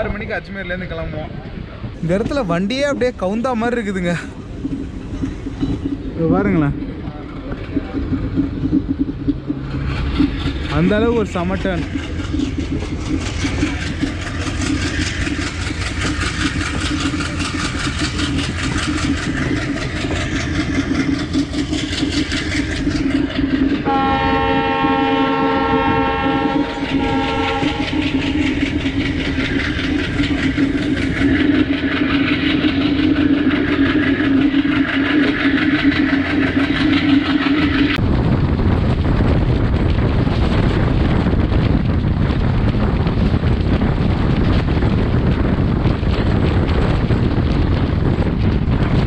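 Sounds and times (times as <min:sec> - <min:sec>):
train wheels on rails: 0:00.0 - 0:49.0
low drone: 0:04.2 - 0:38.2
locomotive horn: 0:23.8 - 0:28.2.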